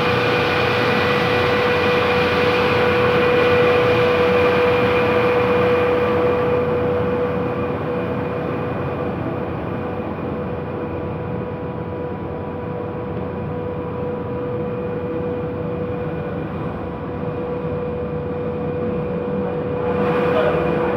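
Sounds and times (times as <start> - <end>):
blower rushing air: 0.0 - 7.6.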